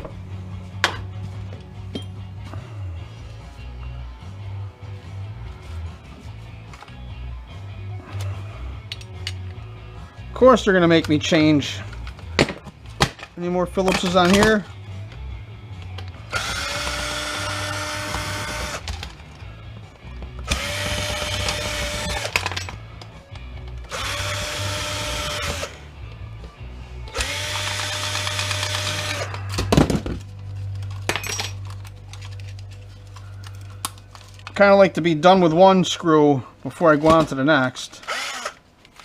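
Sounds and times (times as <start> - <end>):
cordless drill motor whine: 16.3 - 18.8, 20.5 - 22.2, 23.9 - 25.8, 27.1 - 29.3, 38.1 - 38.6.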